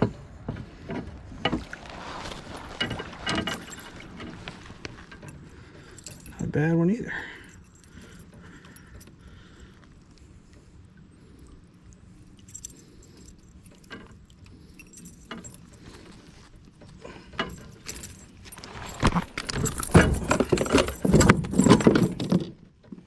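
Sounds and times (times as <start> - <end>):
fishing gear clattering: 0.0 - 23.0
fish thrashing and splashing: 1.2 - 6.4, 14.2 - 22.2.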